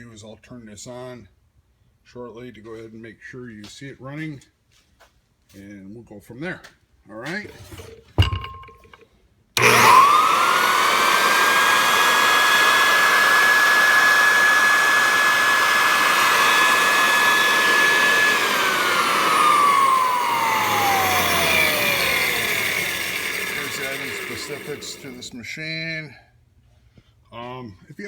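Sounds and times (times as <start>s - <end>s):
electric floor edger motor whine: 9.6s - 25.4s.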